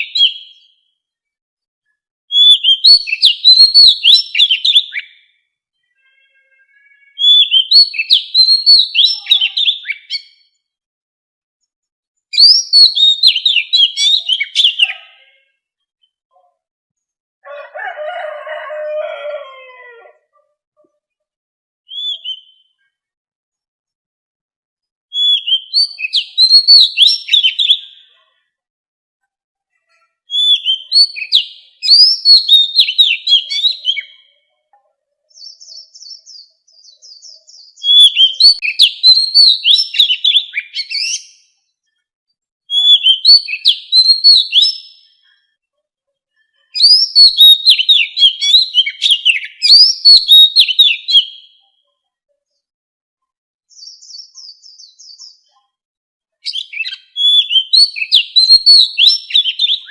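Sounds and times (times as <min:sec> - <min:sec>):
bird singing whistled phrases: 0:00.0 - 0:00.7, 0:02.3 - 0:05.3, 0:07.1 - 0:10.4, 0:12.3 - 0:15.1, 0:21.9 - 0:22.8, 0:25.1 - 0:28.2, 0:30.3 - 0:34.2, 0:35.4 - 0:41.5, 0:42.7 - 0:45.1, 0:46.8 - 0:51.6, 0:56.4 - 0:59.9
soft high bird twittering: 0:12.3 - 0:15.2, 0:21.9 - 0:22.9, 0:53.7 - 0:55.5.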